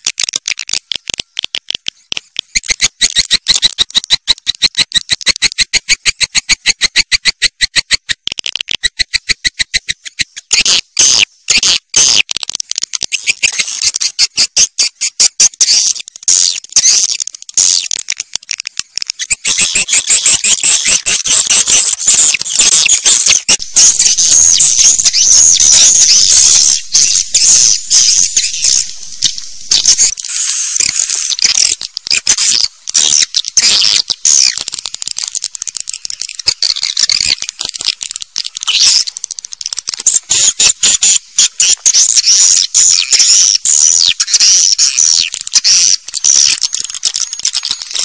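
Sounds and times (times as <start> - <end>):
swiftlets chattering: 15.6 - 48.0.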